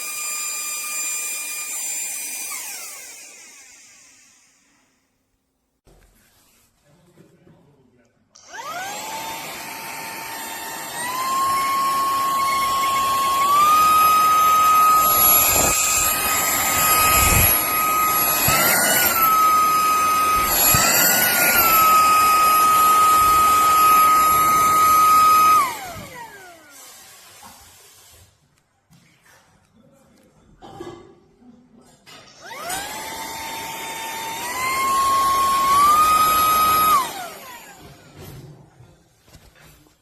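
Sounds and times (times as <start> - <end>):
handheld vacuum motor whining: 0.0 - 5.0, 8.4 - 27.6, 32.4 - 38.4.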